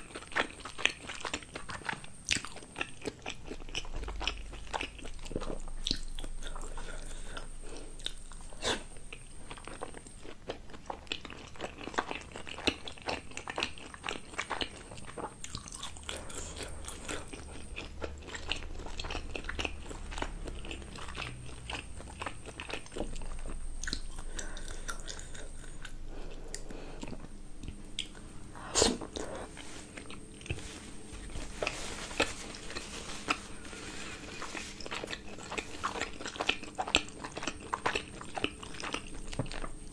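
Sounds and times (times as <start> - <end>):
close chewing with mouth clicks: 0.0 - 39.9.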